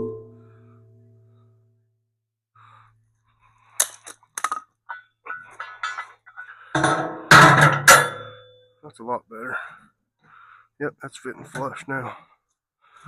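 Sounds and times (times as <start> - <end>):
steel parts knocking and clinking: 3.8 - 8.6.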